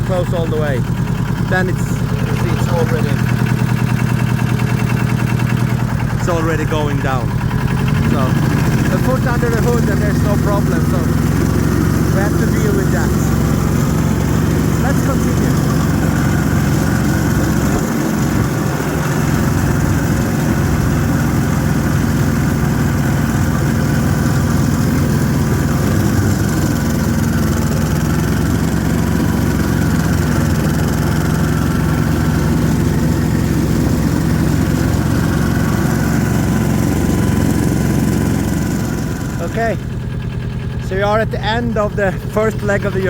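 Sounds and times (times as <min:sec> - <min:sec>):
snowmobile diesel engine running: 0:00.0 - 0:43.0.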